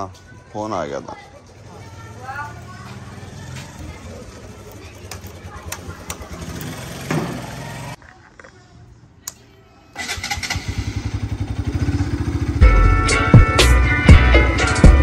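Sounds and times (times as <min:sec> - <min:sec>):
motorcycle engine starting and running: 0:01.4 - 0:08.0, 0:09.9 - 0:15.0
background music with a beat: 0:12.6 - 0:15.0.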